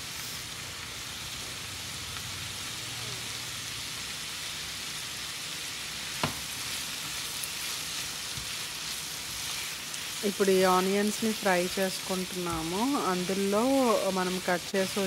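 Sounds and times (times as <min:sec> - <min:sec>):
onions sizzling in hot oil: 0:00.0 - 0:15.0
spatula stirring: 0:06.6 - 0:10.3.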